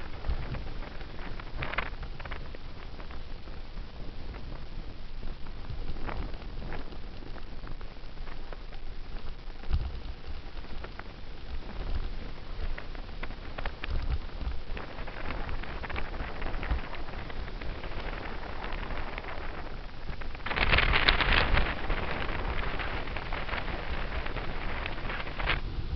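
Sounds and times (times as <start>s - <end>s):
bicycle tyres on pavement: 0.0s - 25.9s
low rumble: 0.0s - 25.9s
wind buffeting microphone: 0.0s - 25.9s.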